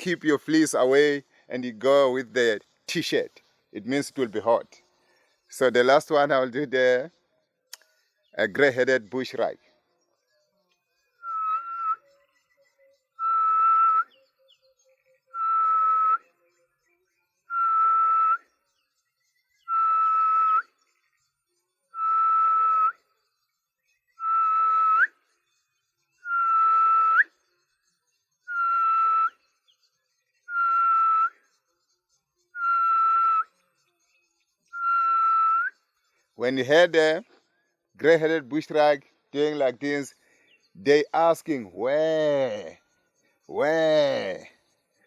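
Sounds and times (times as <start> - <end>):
man whistling bird call: 11.1 - 16.4, 17.4 - 21.1, 21.9 - 31.9, 32.5 - 33.6, 34.5 - 36.2.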